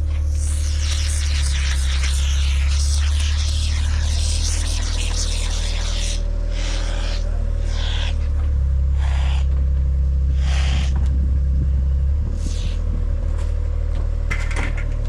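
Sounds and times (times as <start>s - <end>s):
short hissing noises: 0.0s - 8.3s, 8.9s - 9.5s, 10.3s - 11.0s, 12.3s - 12.8s
machine engine droning: 0.0s - 15.0s.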